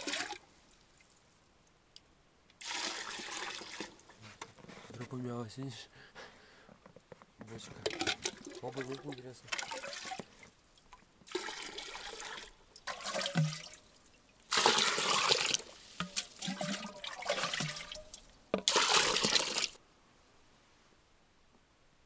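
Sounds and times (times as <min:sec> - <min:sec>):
water gushing into metal barrel: 0:00.0 - 0:00.4, 0:02.6 - 0:04.2, 0:07.8 - 0:10.5, 0:11.3 - 0:13.8, 0:14.5 - 0:19.8.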